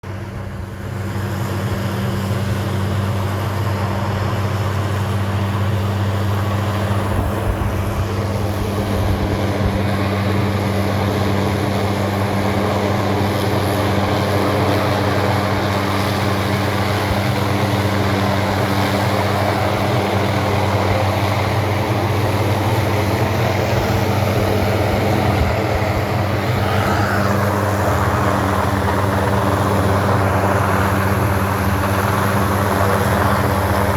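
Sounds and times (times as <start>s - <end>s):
engine drone: 0.0s - 33.9s.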